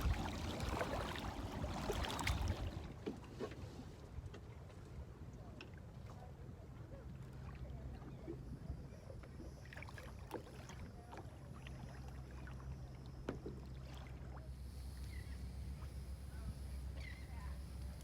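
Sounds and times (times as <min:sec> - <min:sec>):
paddle splashes and knocks: 0:00.0 - 0:04.8, 0:13.2 - 0:14.4.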